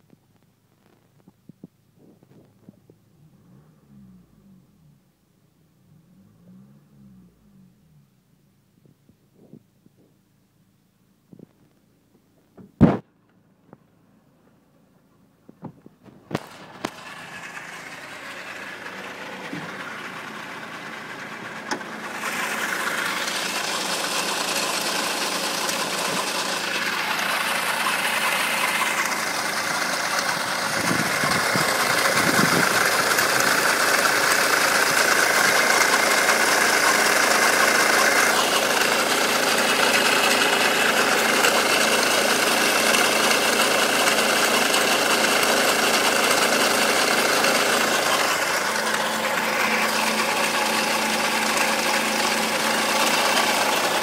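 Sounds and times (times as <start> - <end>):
car engine running: 12.6 - 54.0.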